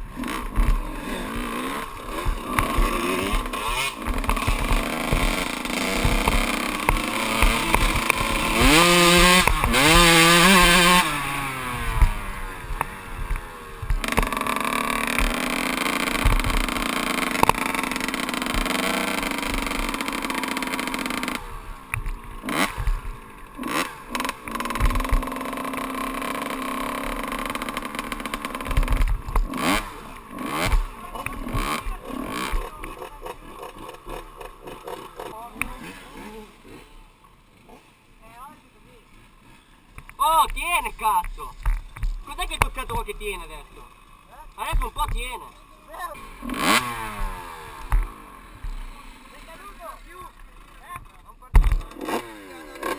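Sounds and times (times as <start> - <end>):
dirt bike engine revving: 0.0 - 52.9
knocks and rattles: 2.1 - 11.0.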